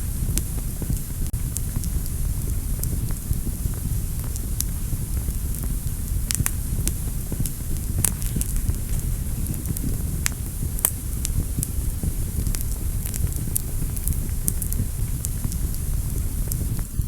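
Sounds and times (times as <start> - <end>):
fire burning with low rumble: 0.0 - 17.0
fire crackling and popping: 0.0 - 17.0.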